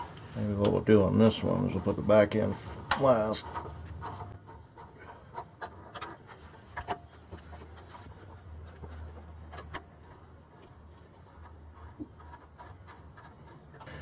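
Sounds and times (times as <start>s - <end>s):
light rubbing of fittings: 0.0s - 4.4s.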